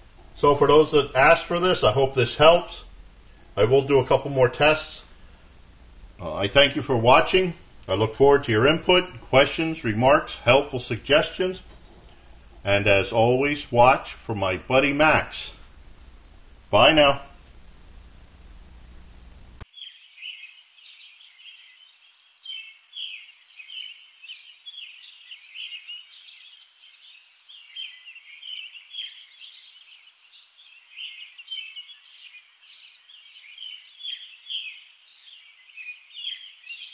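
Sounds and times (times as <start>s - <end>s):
faint outdoor hiss: 0.0s - 36.9s
small birds chirping chorus: 19.6s - 36.9s.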